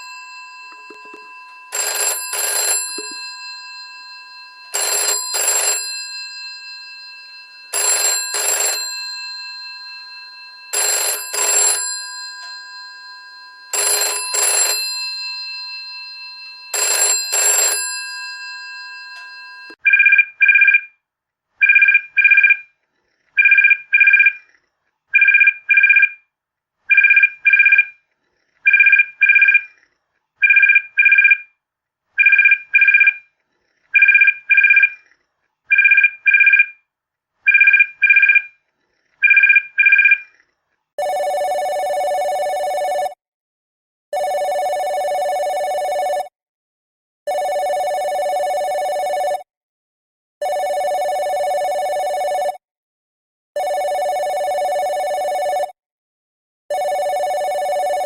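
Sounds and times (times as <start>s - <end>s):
telephone bell ringing: 0.0s - 19.8s, 41.0s - 43.2s, 44.1s - 46.3s, 47.3s - 49.5s, 50.4s - 52.6s, 53.6s - 55.8s, 56.7s - 58.0s
electronic two-tone telephone trill: 0.0s - 20.8s, 41.0s - 43.2s, 44.2s - 46.3s, 47.3s - 49.5s, 50.4s - 52.6s, 53.6s - 55.8s, 56.7s - 58.0s.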